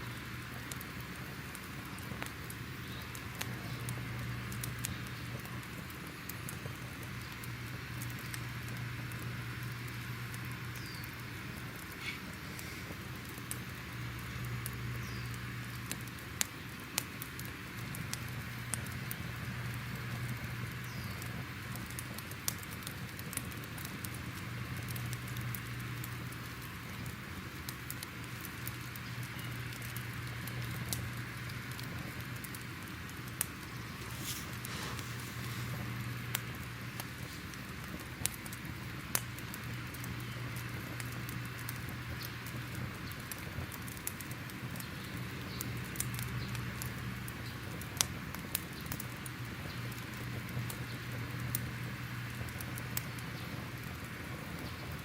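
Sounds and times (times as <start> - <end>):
fire crackling and popping: 0.0 - 55.0.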